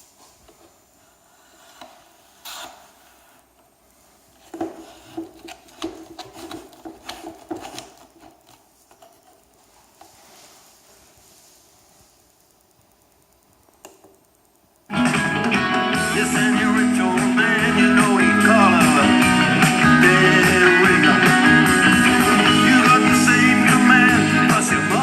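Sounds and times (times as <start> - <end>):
handling noise clicks and knocks: 4.4 - 9.5.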